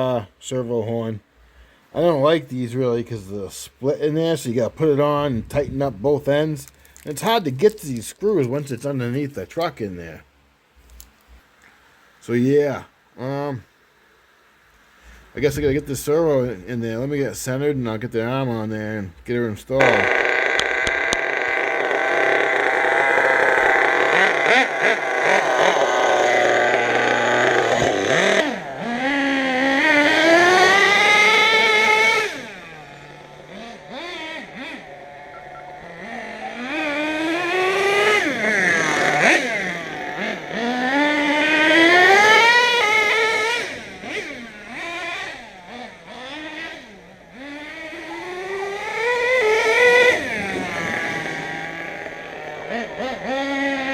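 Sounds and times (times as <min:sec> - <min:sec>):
small engine revving: 0:19.8 - 0:53.9.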